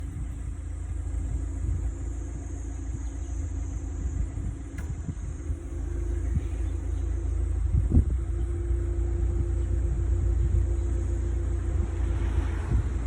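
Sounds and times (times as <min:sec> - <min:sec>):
steady low rumble: 0:00.0 - 0:13.0
irregular low thumps: 0:03.9 - 0:11.0.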